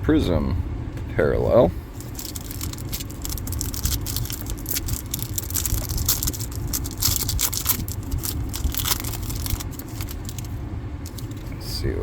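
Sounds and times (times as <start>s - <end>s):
steady low hum: 0.0s - 12.0s
foil wrapper crinkling and tearing: 1.9s - 11.5s.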